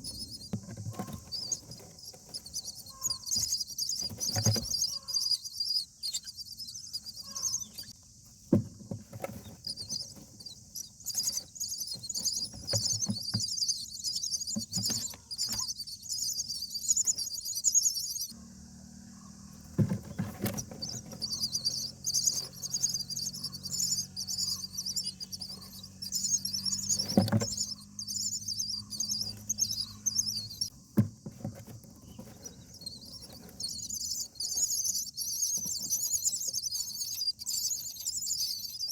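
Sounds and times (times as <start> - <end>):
nestlings chirping: 0.0 - 38.9
sharp knocks in nest: 19.6 - 22.7.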